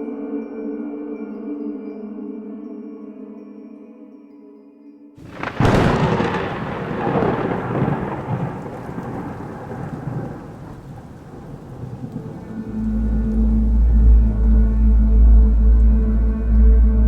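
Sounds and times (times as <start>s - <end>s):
thunder crack and rumble: 5.2s - 15.8s.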